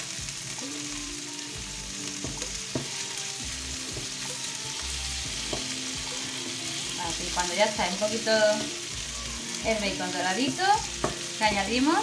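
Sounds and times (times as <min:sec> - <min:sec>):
bacon and onion sizzling: 0:00.0 - 0:12.0
wooden spoon knocking on pan: 0:02.2 - 0:03.0, 0:03.9 - 0:04.2, 0:05.4 - 0:06.2, 0:11.0 - 0:11.3.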